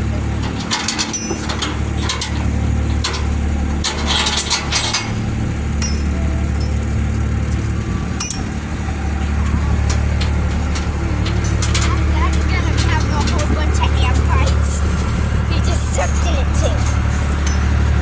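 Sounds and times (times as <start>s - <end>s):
engine idling: 0.0s - 18.0s
light clinks and clicks: 0.4s - 8.6s, 16.8s - 18.0s.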